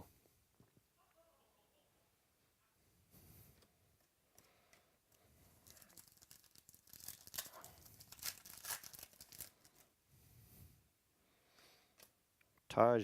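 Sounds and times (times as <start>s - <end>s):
plastic wrapper tearing and crinkling: 5.5s - 9.9s.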